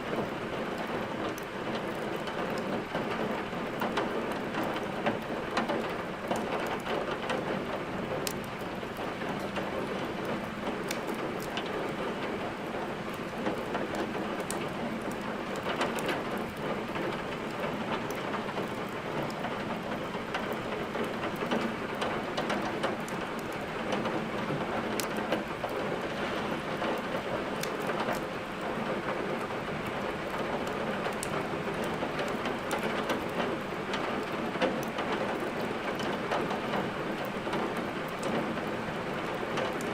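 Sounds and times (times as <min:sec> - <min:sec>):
steady rain: 0:00.0 - 0:39.9
wood fire crackling: 0:07.7 - 0:23.9, 0:24.8 - 0:39.9.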